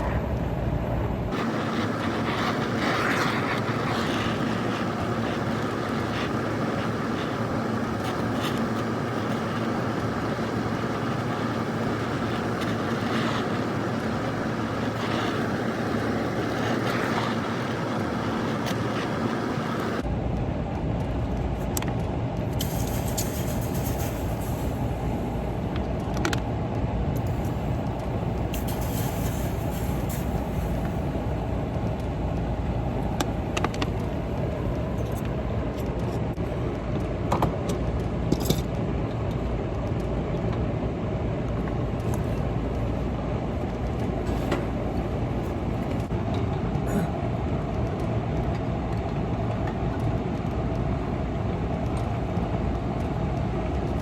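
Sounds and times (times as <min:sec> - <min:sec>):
machine running: 0:01.3 - 0:20.0.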